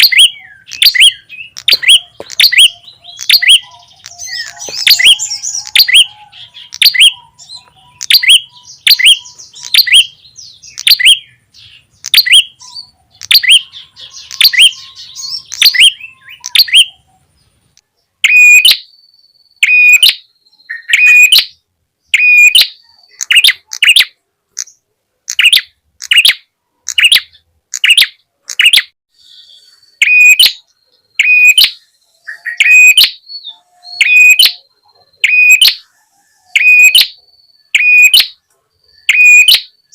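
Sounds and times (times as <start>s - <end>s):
bird sharp falling chirps: 0.0s - 6.2s
bird whistled calls: 0.0s - 17.1s, 18.2s - 21.6s, 22.2s - 24.0s, 29.2s - 35.9s, 36.5s - 39.9s.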